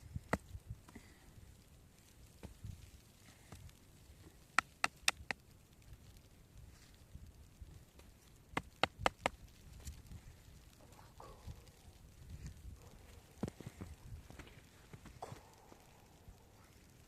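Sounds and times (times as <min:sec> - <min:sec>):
faint background noise: 0:00.0 - 0:17.0.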